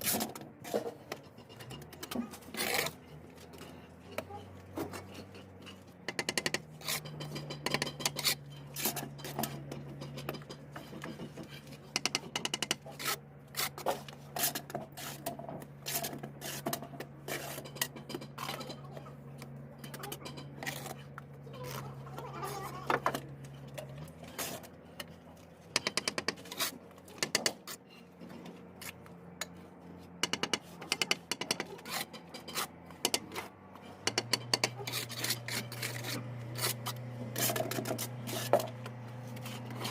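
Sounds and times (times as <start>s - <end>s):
trowel scraping mortar: 1.8s - 12.0s, 12.6s - 18.6s, 24.0s - 28.2s, 30.3s - 39.9s
trowel tapping bricks: 6.1s - 13.8s, 25.8s - 27.7s, 30.2s - 33.4s, 34.0s - 38.8s.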